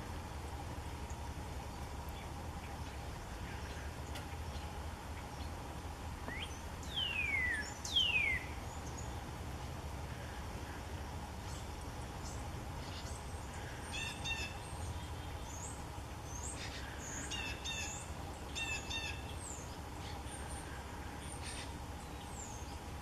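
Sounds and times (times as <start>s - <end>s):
low background hum: 0.0s - 23.0s
songbirds chirping and singing: 0.2s - 23.0s.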